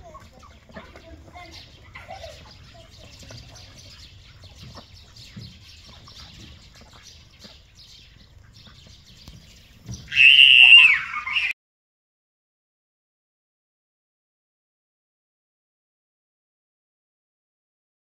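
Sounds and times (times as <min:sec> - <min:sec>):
faint birds chirping: 0:00.0 - 0:11.6
loud high bird call: 0:10.1 - 0:11.6.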